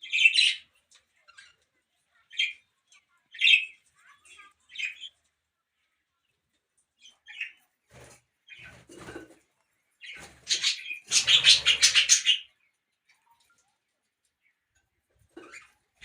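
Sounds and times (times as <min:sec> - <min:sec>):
parrot chirp: 0:10.0 - 0:12.6.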